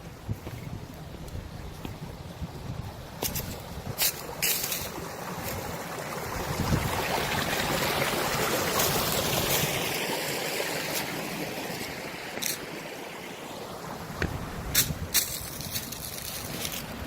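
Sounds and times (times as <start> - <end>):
stream water rushing: 2.1 - 17.0.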